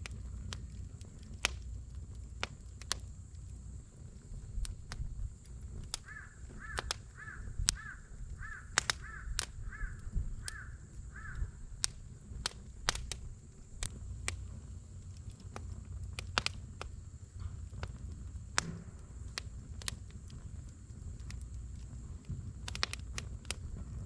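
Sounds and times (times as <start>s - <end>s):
campfire crackling and popping: 0.0s - 24.0s
bird calling: 6.0s - 11.6s.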